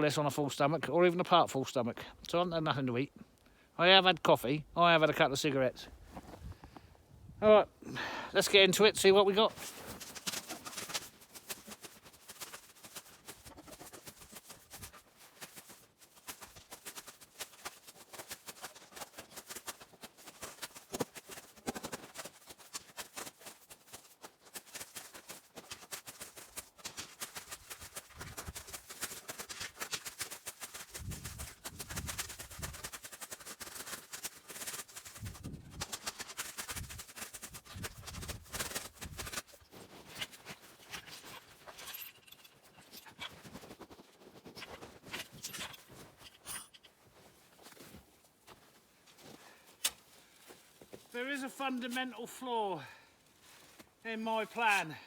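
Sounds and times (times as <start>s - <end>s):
shovel crunching into snow: 9.0s - 46.2s.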